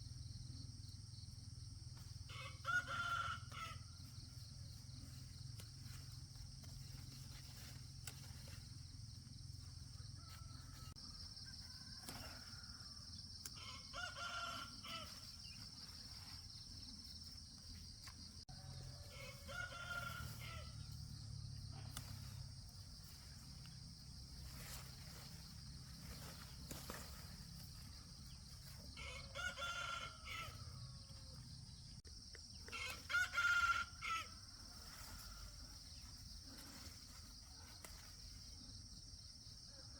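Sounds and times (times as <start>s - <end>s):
rooster crowing: 2.3s - 4.0s, 9.8s - 15.3s, 18.4s - 20.9s, 28.8s - 31.3s, 32.7s - 34.6s.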